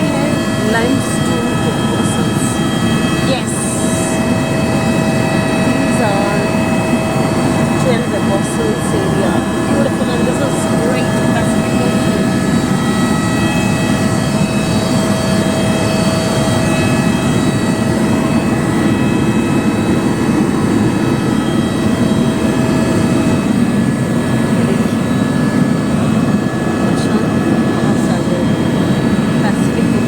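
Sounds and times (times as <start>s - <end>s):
helicopter drone: 0.0s - 30.0s
high whining tones: 0.0s - 30.0s.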